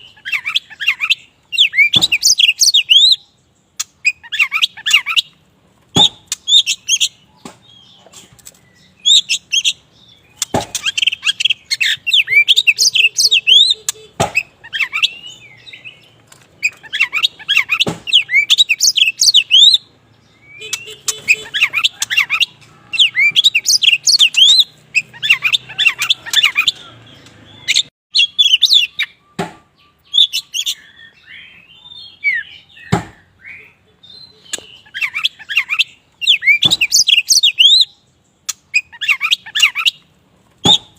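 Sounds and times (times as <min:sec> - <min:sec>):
bird singing whistled phrases: 0:00.0 - 0:03.4, 0:08.7 - 0:16.0, 0:16.7 - 0:26.9, 0:27.6 - 0:38.0.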